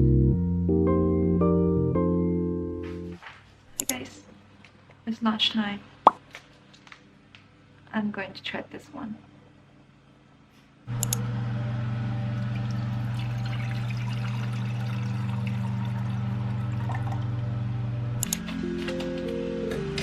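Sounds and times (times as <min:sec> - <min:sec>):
electric hum: 0:10.9 - 0:18.8
rushing pouring noise: 0:12.4 - 0:17.2.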